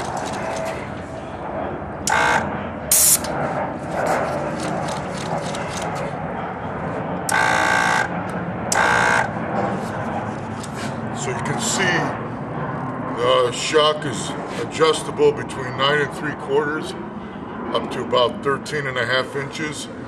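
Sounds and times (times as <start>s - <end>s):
short electric buzzes: 2.1s - 3.4s, 7.3s - 8.1s, 8.7s - 9.3s
air hiss: 2.9s - 3.3s.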